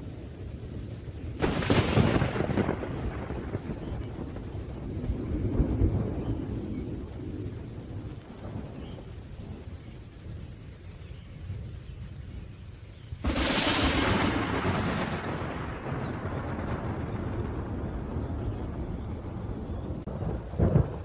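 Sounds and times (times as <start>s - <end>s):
steady rain: 0.0s - 21.0s
rolling thunder: 1.3s - 10.5s, 13.2s - 21.0s
sharp thunderclap: 1.4s - 9.0s, 13.2s - 21.0s.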